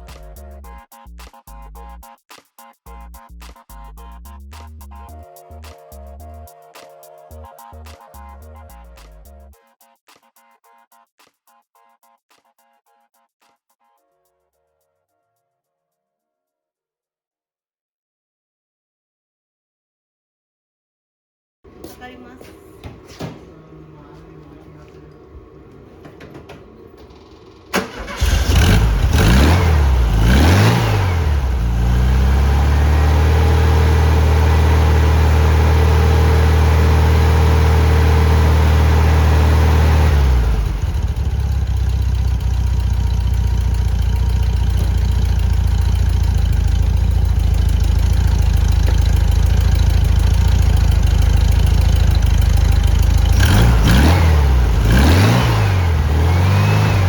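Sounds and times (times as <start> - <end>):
car engine starting and revving: 21.7 - 57.0.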